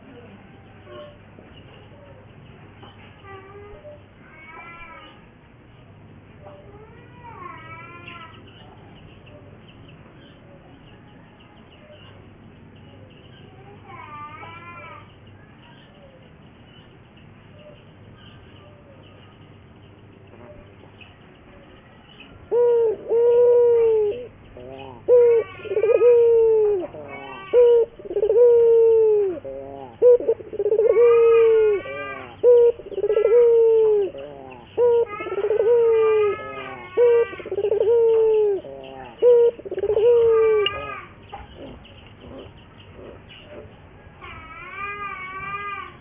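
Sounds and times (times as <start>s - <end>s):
higher wavy bird calls: 16.7s - 46.0s
dove cooing: 20.2s - 46.0s.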